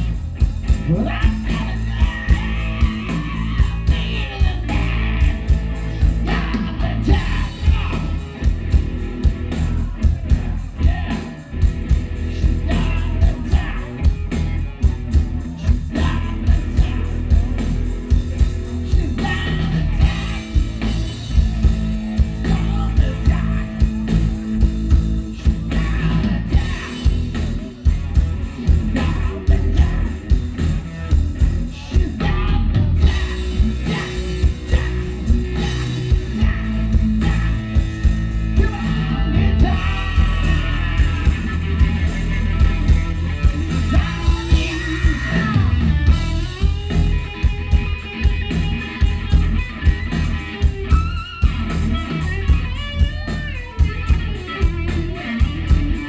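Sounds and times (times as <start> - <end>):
drums: 0.0 - 56.0
live rock band playing: 0.0 - 56.0
person singing: 0.8 - 8.8, 12.2 - 17.8, 18.7 - 20.9, 25.4 - 27.8, 31.6 - 37.8, 38.5 - 47.6.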